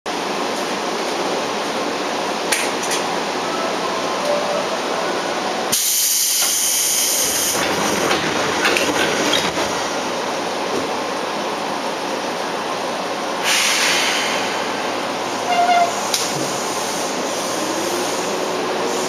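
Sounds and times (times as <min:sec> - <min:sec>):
train equipment hum: 0:00.1 - 0:19.0
compressed air hiss: 0:13.4 - 0:14.7.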